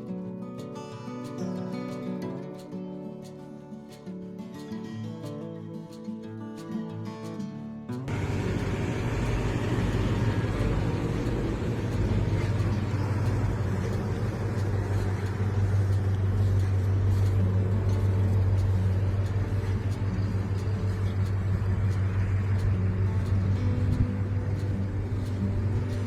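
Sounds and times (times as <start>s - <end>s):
car engine idling: 8.1s - 26.0s.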